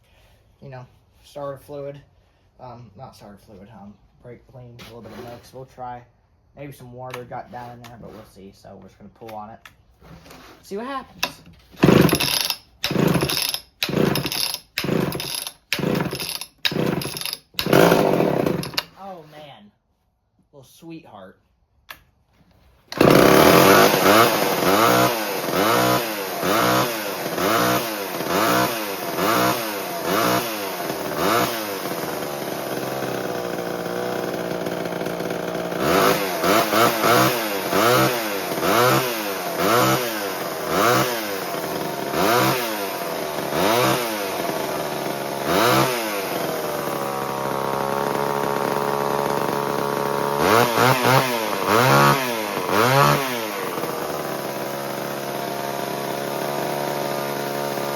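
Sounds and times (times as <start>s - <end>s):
chainsaw revving and idling: 11.8s - 19.0s, 22.9s - 57.9s.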